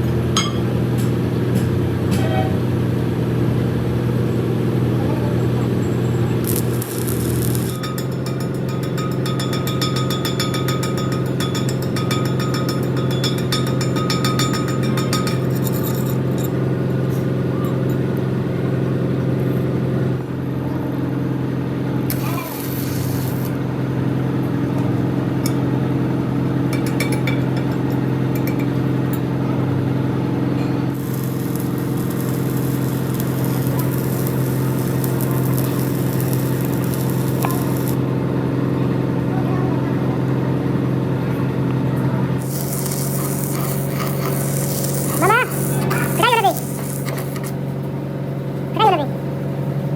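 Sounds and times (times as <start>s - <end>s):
machine hum: 6.2s - 19.6s, 29.9s - 38.3s
rapid crackling: 6.4s - 9.2s, 42.4s - 47.6s
hiss: 22.1s - 23.6s, 42.4s - 47.6s.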